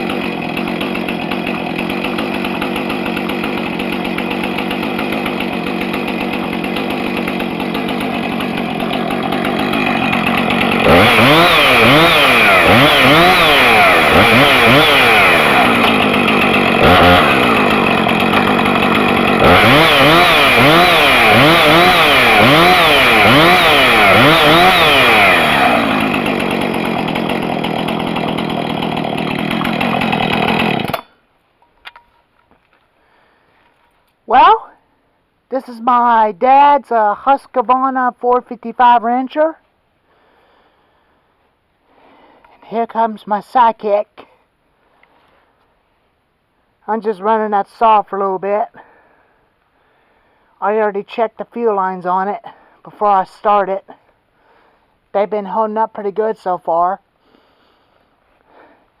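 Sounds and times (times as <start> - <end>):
chainsaw engine revving: 0.0 - 31.1.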